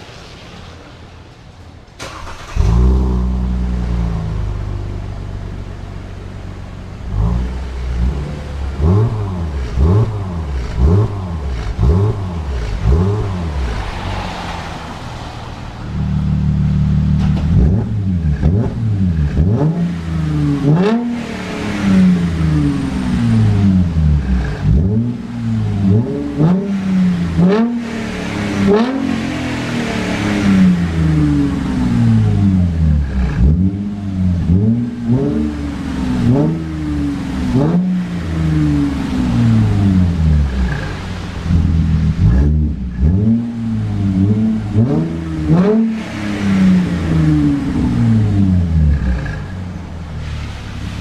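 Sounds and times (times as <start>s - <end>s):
car engine revving and idling: 2.0s - 51.0s.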